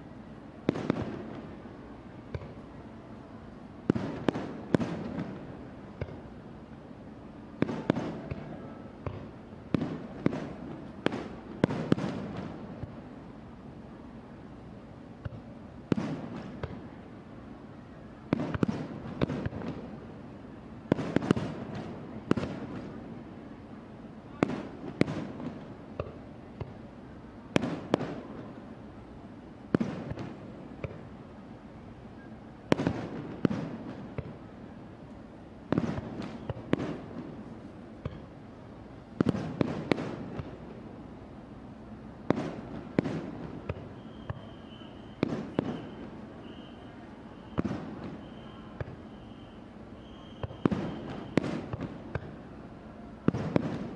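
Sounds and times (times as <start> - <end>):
fireworks bursting: 0.6 - 2.8, 3.8 - 6.4, 7.5 - 13.1, 15.2 - 17.0, 18.2 - 23.6, 24.2 - 28.9, 29.6 - 31.2, 32.6 - 34.8, 35.6 - 41.0, 42.2 - 53.9.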